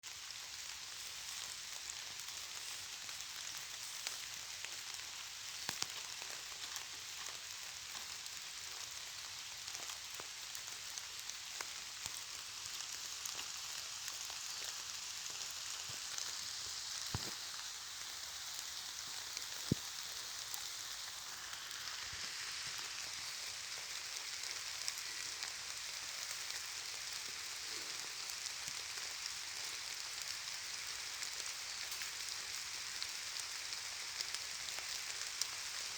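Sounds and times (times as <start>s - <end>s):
steady rain: 0.0s - 35.9s.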